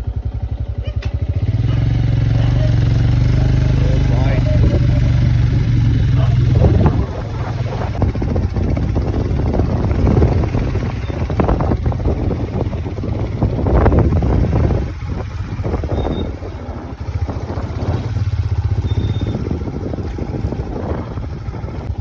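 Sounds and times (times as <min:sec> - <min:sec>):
vehicle engine rumble: 0:00.0 - 0:22.0
wind buffeting microphone: 0:00.2 - 0:22.0.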